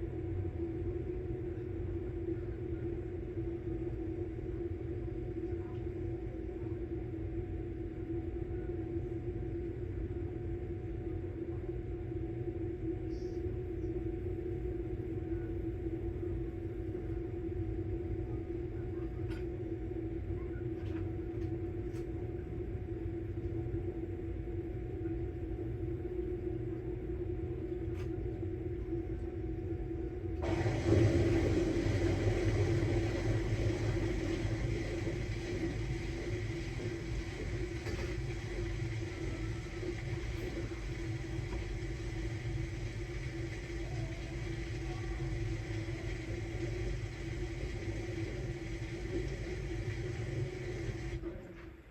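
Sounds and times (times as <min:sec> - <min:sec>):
washing machine running: 0:26.3 - 0:51.9.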